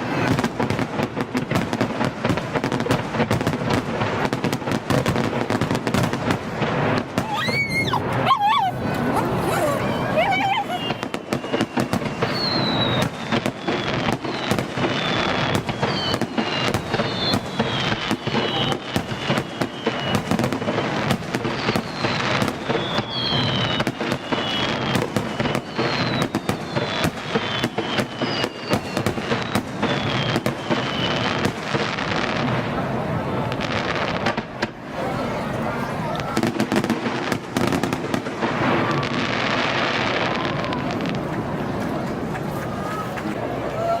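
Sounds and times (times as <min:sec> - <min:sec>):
fireworks bangs and crackling: 0:00.0 - 0:44.0
firework whistles falling in pitch: 0:07.2 - 0:08.7, 0:10.2 - 0:31.5.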